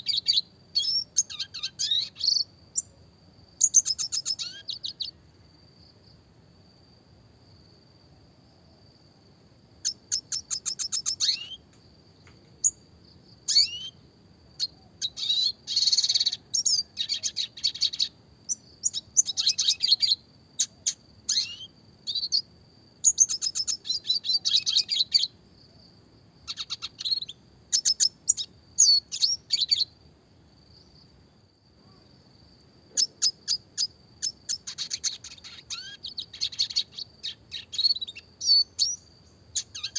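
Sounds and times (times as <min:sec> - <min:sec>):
bird singing fast trills and chirps: 0:00.0 - 0:02.9, 0:03.6 - 0:05.2, 0:09.8 - 0:11.6, 0:12.6 - 0:12.8, 0:13.5 - 0:14.0, 0:14.6 - 0:25.4, 0:26.4 - 0:30.0, 0:33.0 - 0:39.9.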